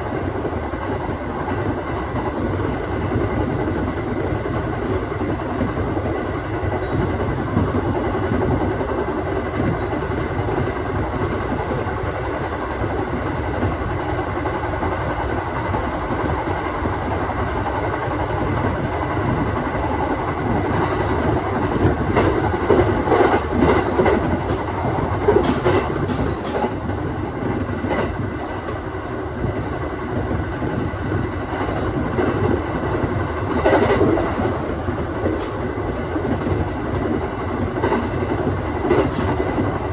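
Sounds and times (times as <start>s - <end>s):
train wheels rumbling on rail: 0.0s - 39.9s
wheel clicks over rail joints: 21.7s - 28.8s.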